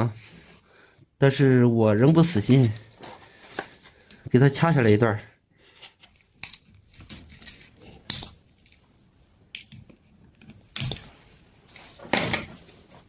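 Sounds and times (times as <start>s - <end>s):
scissors snipping wire: 9.5s - 11.2s.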